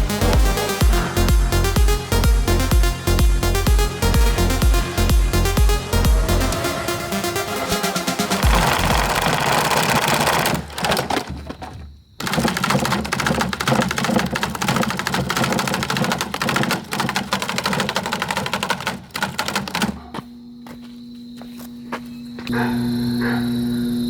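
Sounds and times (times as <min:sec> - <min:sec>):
steady hum: 0:00.0 - 0:10.9
table fan clattering: 0:08.4 - 0:20.3.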